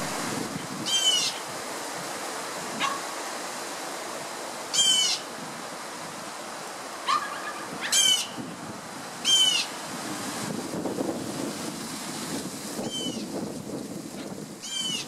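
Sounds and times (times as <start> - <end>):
wind noise on microphone: 0.0 - 3.3, 7.1 - 15.0
bird calling: 0.8 - 1.5, 4.7 - 5.3, 7.1 - 8.4, 9.2 - 9.8, 12.9 - 13.2, 14.6 - 15.0.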